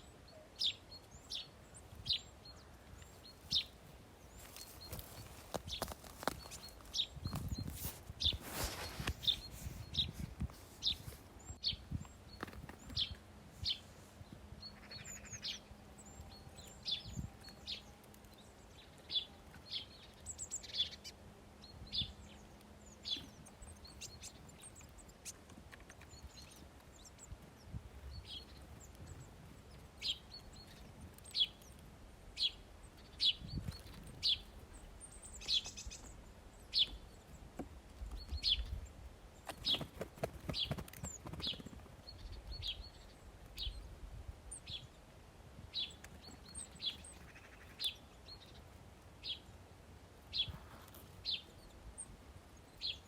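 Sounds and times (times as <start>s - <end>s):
small songbirds chirping: 0.0s - 53.0s
rustling: 4.3s - 11.4s.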